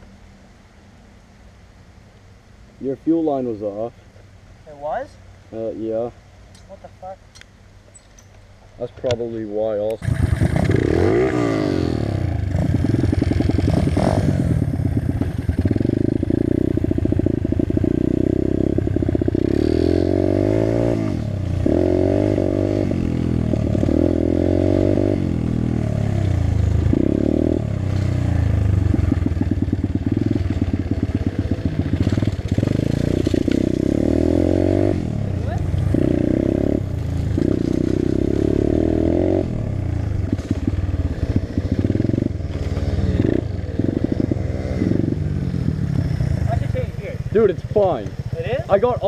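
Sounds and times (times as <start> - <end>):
dirt bike engine revving: 10.0 - 49.0.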